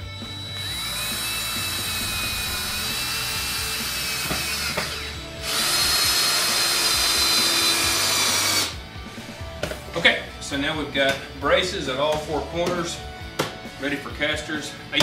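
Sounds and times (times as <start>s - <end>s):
cordless drill driving screws: 0.1s - 8.8s.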